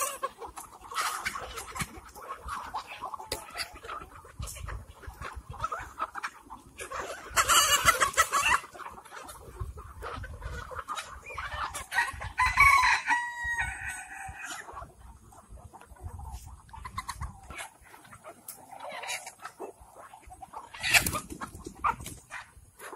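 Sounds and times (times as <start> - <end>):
chicken squawking: 0.0 - 12.4, 16.3 - 22.9
chickens clucking: 0.0 - 22.9
rooster crowing: 12.4 - 14.3.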